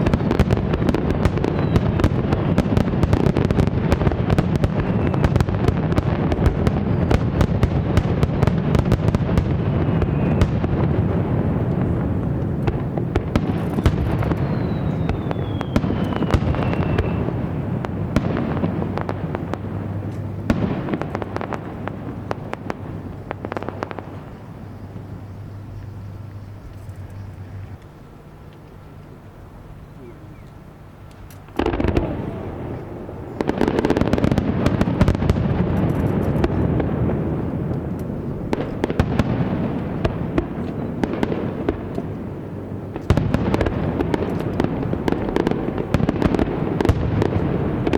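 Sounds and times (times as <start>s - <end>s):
falling firework whistle: 0.0s - 6.0s, 7.4s - 10.9s, 13.4s - 17.4s
fireworks crackling and banging: 0.0s - 29.6s, 30.8s - 47.9s.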